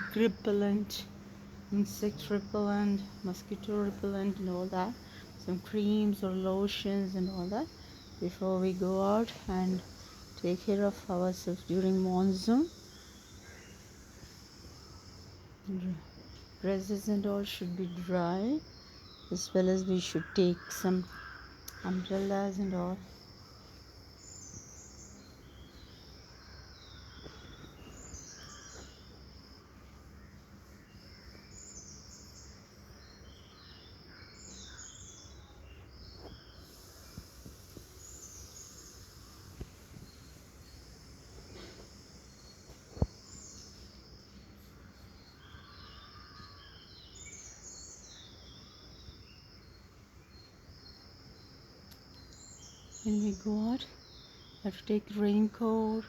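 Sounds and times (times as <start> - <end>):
birds chirping and warbling: 0.0 - 56.0
faint steady hum: 0.0 - 56.0.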